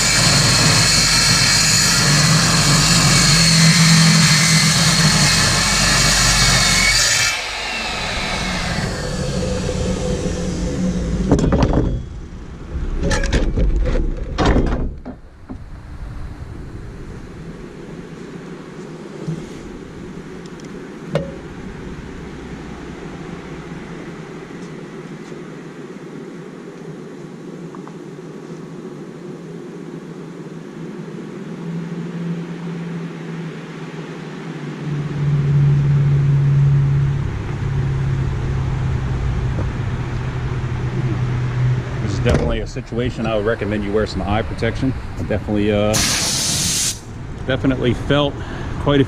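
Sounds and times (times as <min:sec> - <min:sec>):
circular saw cutting steel: 0:00.0 - 0:11.4
saw whine winding down: 0:00.0 - 0:12.7, 0:31.6 - 0:48.0.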